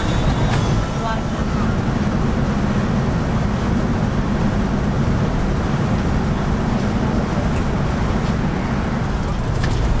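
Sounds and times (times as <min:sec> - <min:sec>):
coach engine hum: 0:00.0 - 0:10.0
tyre and road noise: 0:00.0 - 0:10.0.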